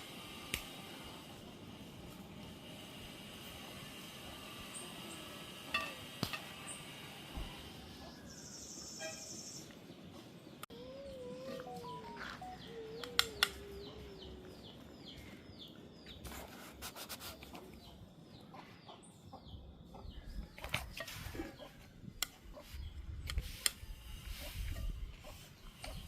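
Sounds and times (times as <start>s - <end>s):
bird chirping falling notes: 11.2s - 15.3s.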